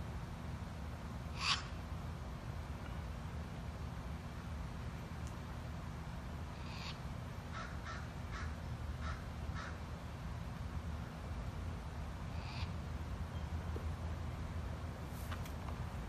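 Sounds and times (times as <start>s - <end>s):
steady low hum: 0.0s - 16.0s
bird short calls: 1.3s - 1.8s.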